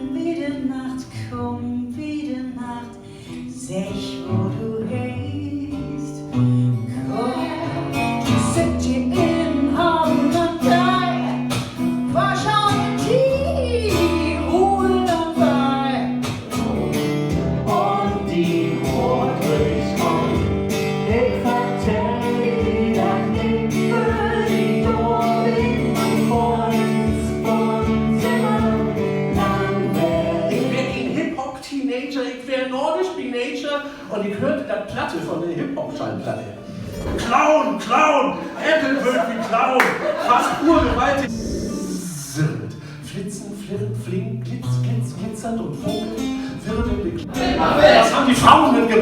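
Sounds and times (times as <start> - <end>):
person singing: 0.0 - 31.3
acoustic guitar: 0.0 - 32.1, 33.8 - 49.0.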